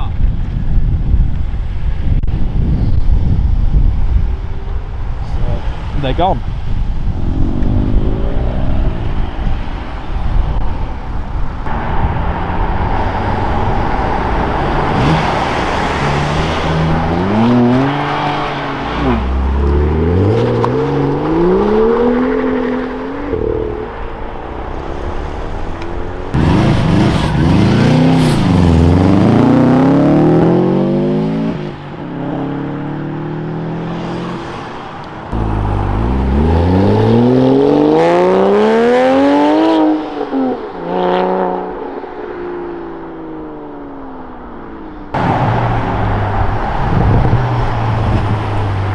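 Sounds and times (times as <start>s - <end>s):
car engines revving hard: 7.0s - 41.8s, 45.1s - 48.9s.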